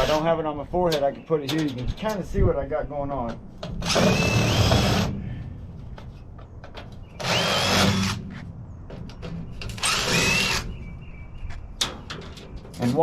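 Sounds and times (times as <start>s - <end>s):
power drill whining: 3.8s - 5.1s, 7.2s - 8.2s, 9.8s - 10.7s.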